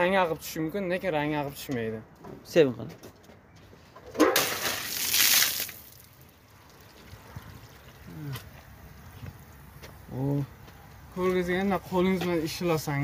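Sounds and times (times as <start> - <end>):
water splashing on tiled wall: 4.4 - 8.2.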